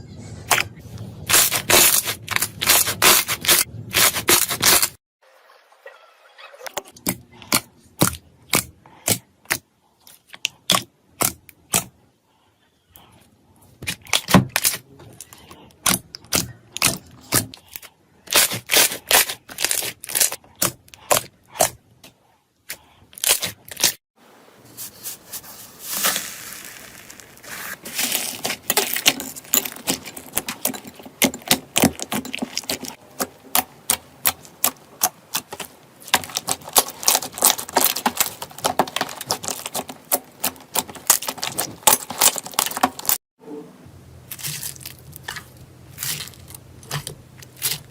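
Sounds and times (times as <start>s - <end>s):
slime popping and crackling: 25.9s - 43.2s, 44.3s - 47.9s.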